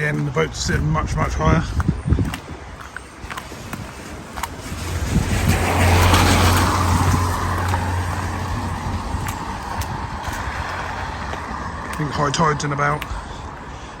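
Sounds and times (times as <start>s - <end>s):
car engine hum: 2.5s - 14.0s
tyres hissing on wet road: 3.2s - 12.2s.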